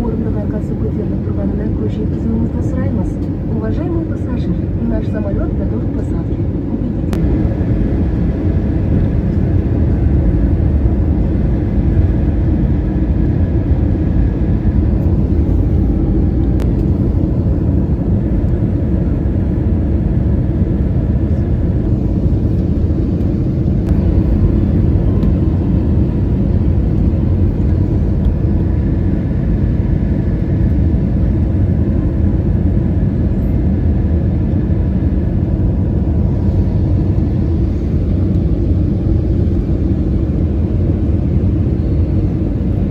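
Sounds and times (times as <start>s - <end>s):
airliner cabin rumble: 0.0s - 42.9s.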